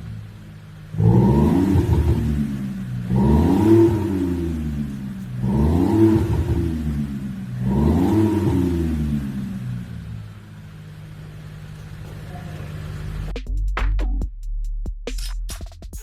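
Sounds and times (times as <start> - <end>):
car exhaust revving: 0.0 - 13.4.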